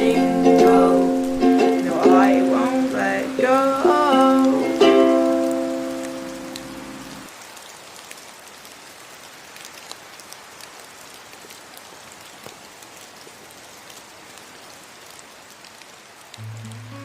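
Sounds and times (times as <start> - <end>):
ukulele chord ringing: 0.0 - 7.2, 16.4 - 17.0
steady rain: 0.0 - 17.0.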